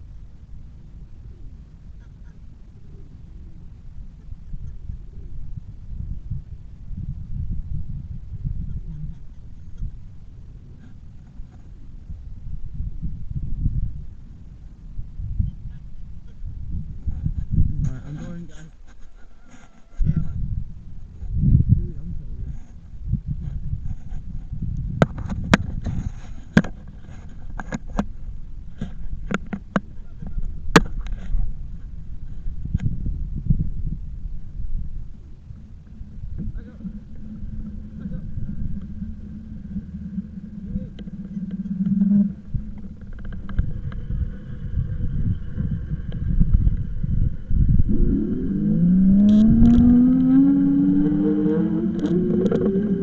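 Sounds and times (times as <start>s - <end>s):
steady low rumble: 0.0s - 19.2s, 20.0s - 53.0s
wind on microphone: 0.0s - 53.0s
road rumble: 34.0s - 53.0s
motor whine rising in pitch: 36.8s - 53.0s.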